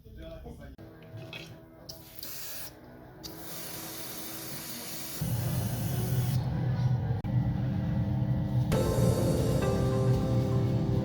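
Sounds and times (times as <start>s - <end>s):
spray paint hissing: 3.3s - 6.3s
loud low hum: 5.2s - 11.0s
background music: 8.6s - 11.0s.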